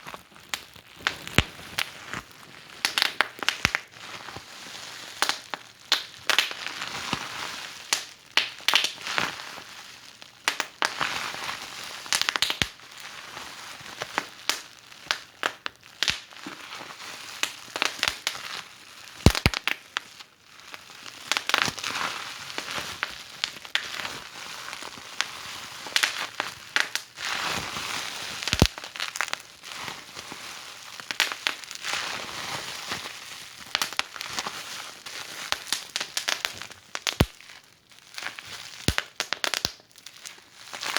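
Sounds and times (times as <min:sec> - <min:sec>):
wood fire crackling: 0:00.1 - 0:03.9, 0:14.5 - 0:16.3, 0:19.2 - 0:19.8, 0:28.4 - 0:29.4, 0:31.1 - 0:31.8, 0:33.6 - 0:34.2, 0:35.4 - 0:37.5, 0:38.2 - 0:40.9.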